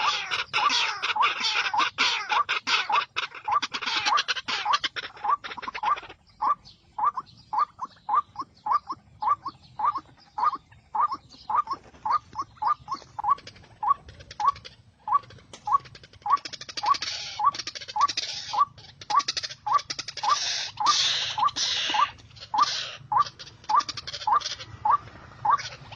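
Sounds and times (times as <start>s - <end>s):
waterhen calling: 0.0s - 25.9s.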